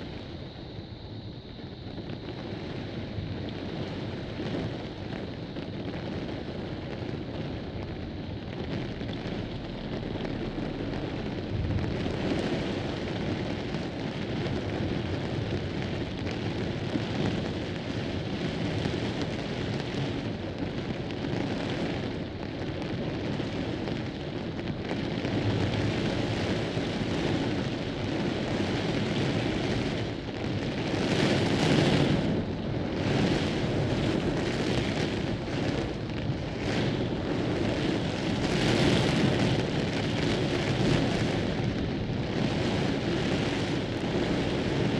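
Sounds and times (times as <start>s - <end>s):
gusting wind: 0.0s - 44.9s
heavy rain: 0.0s - 44.9s.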